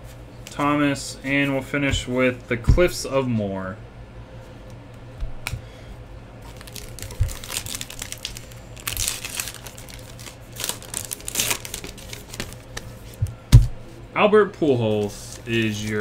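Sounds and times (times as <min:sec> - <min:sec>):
card packaging crinkling: 0:06.5 - 0:13.2.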